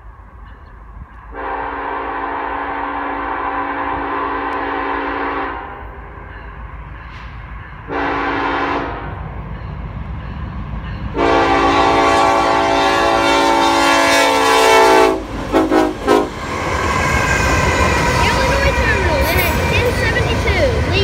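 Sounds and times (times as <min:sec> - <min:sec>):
freight train rumble: 0:00.0 - 0:21.0
locomotive air horn blasts: 0:01.3 - 0:05.9, 0:07.9 - 0:09.2, 0:11.1 - 0:16.4.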